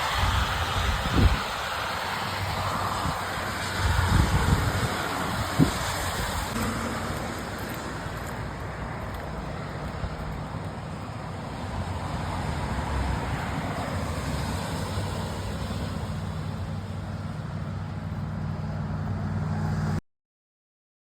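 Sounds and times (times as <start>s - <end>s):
motorcycle engine drone: 0.0s - 20.0s
wind and road rush: 0.0s - 20.0s.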